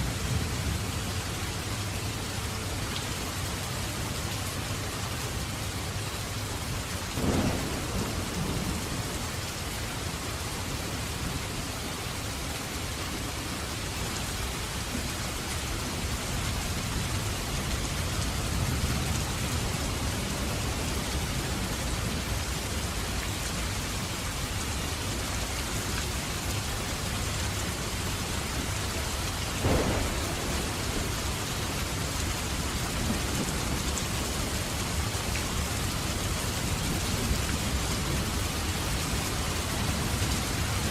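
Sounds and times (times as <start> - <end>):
heavy rain: 0.0 - 40.9
thunder cracks and rumbling: 7.2 - 9.4, 29.6 - 35.7.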